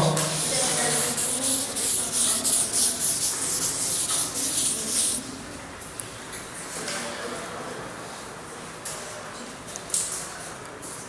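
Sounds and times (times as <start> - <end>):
scratchy rubbing and rustling: 0.3 - 5.2.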